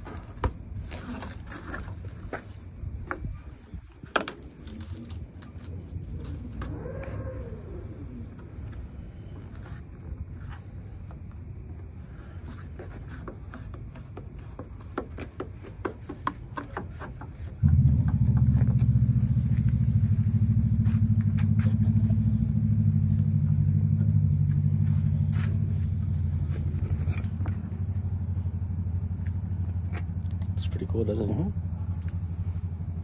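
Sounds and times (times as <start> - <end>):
vehicle engine idling: 17.3 - 33.0
low rumble: 17.6 - 33.0.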